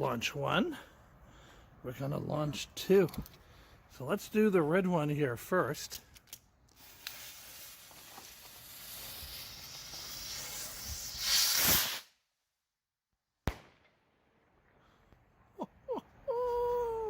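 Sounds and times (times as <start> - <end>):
sharp crack: 5.9 - 12.2, 13.4 - 15.3
firework rocket hissing: 6.7 - 12.2.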